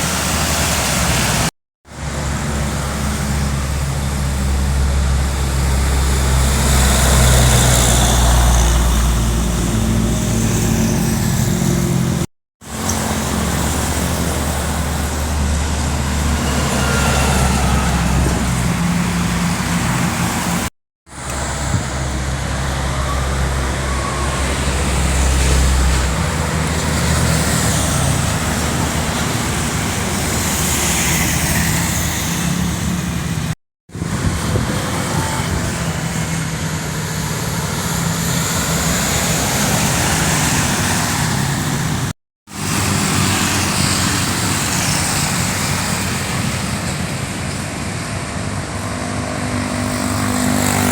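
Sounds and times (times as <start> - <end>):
heavy diesel trucks passing: 0.0 - 50.9
tyre and wind noise: 32.8 - 36.5.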